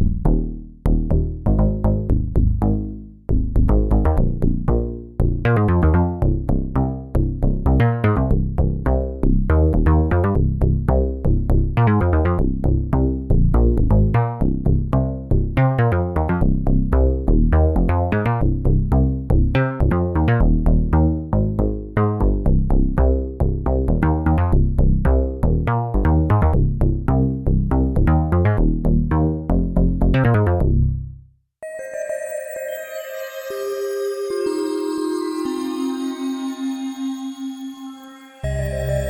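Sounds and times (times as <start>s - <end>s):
low synth bass notes: 0.0s - 31.2s
synthesizer plucked notes: 3.4s - 6.7s, 11.8s - 12.4s, 31.6s - 39.0s.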